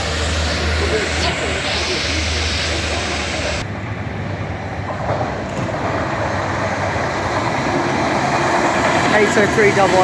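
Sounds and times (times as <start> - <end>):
train wheels clattering on track: 0.0 - 10.0.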